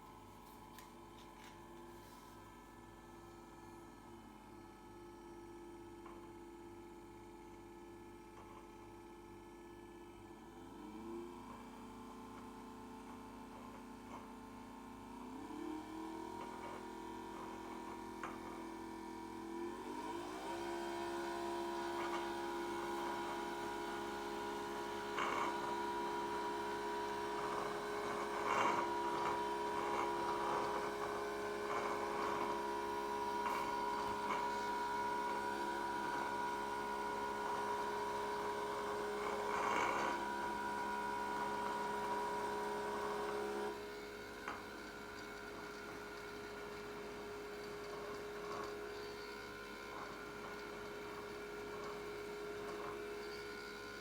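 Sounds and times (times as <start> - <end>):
vacuum motor whining: 15.3 - 54.0.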